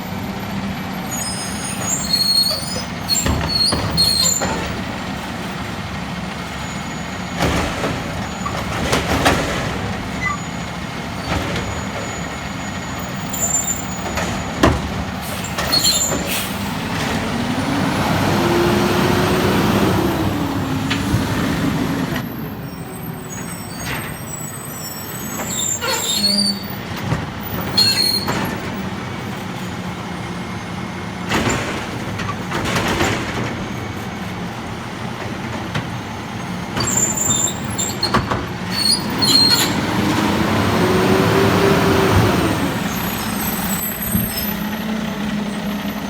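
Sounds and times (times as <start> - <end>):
truck engine running: 0.0 - 25.7
sharp knocks and clanks: 13.4 - 17.5, 31.3 - 34.2.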